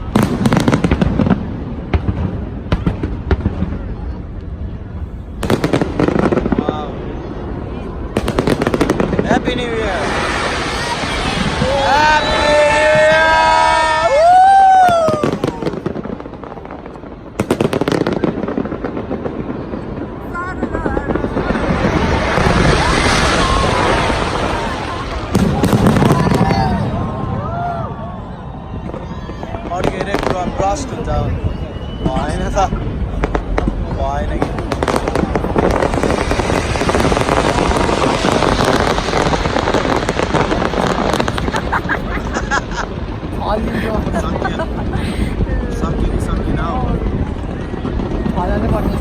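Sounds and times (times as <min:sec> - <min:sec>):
fireworks exploding: 0:00.0 - 0:49.0
crowd shouting and cheering: 0:09.6 - 0:18.7, 0:19.3 - 0:49.0
whistles: 0:31.1 - 0:32.8.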